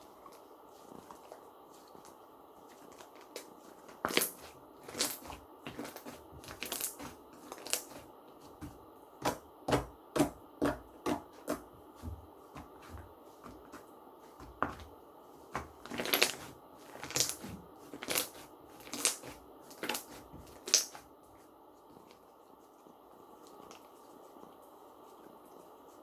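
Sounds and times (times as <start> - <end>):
slime popping: 3.2 - 8.0, 15.6 - 21.0.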